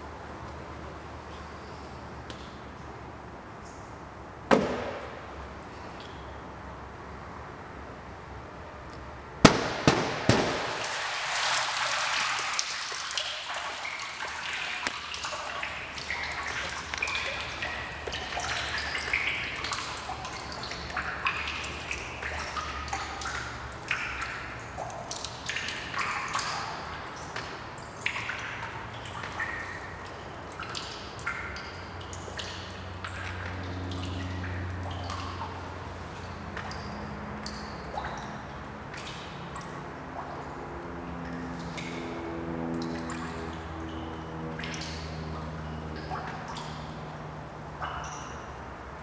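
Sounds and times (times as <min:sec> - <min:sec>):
sharp knocks: 0:04.5 - 0:05.2
water drops plinking on pool: 0:12.9 - 0:49.0.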